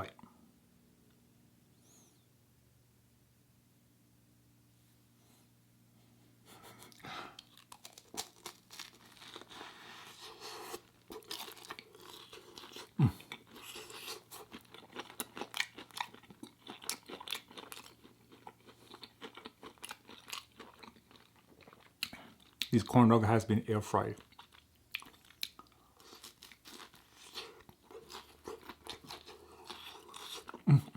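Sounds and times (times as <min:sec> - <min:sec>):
crunchy chewing: 0:06.7 - 0:22.7, 0:24.2 - 0:30.9.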